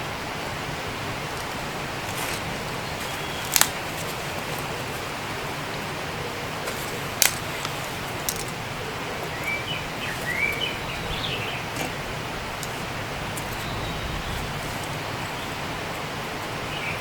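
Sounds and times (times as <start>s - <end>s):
background hiss: 0.0s - 17.0s
bird chirping: 1.3s - 17.0s.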